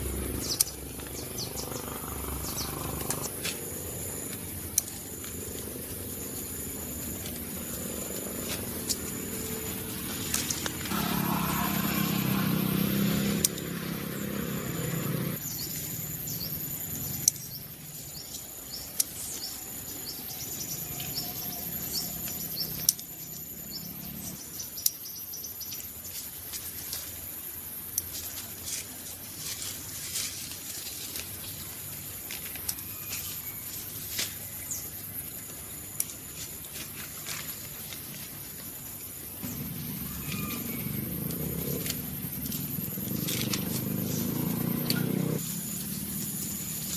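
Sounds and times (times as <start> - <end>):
high-pitched insect drone: 0.0 - 17.7, 19.7 - 24.4, 38.2 - 46.9
birds chirping: 0.0 - 25.6, 39.3 - 46.9.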